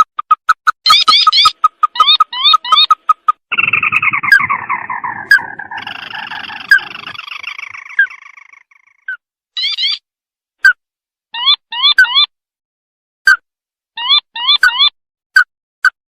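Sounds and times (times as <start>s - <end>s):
bird calling with falling trill: 0.8s - 10.0s, 14.0s - 15.0s.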